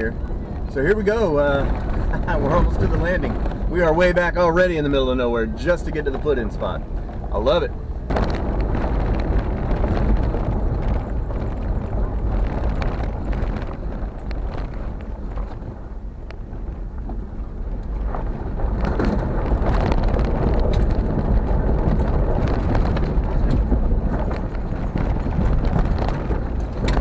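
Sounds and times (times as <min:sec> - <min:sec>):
vehicle rumbling on road: 0:00.0 - 0:27.0
knocks and rattles: 0:17.8 - 0:27.0.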